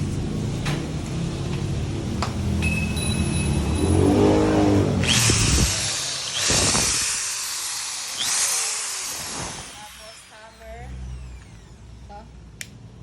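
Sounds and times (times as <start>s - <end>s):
impact drill motor whirring: 3.2s - 12.9s.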